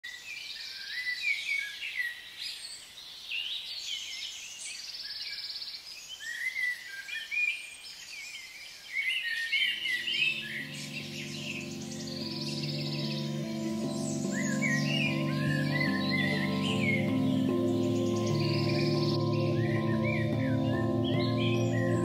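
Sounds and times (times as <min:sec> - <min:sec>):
birds singing and chirping: 0:00.3 - 0:22.0
soft music with low notes: 0:09.7 - 0:22.0.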